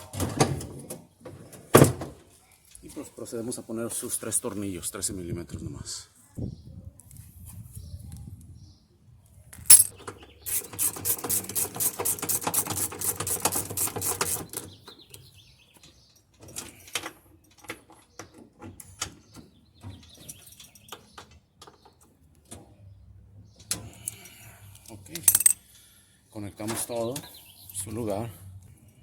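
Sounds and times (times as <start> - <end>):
sharp metal clink: 9.6 - 10.0, 25.2 - 25.6.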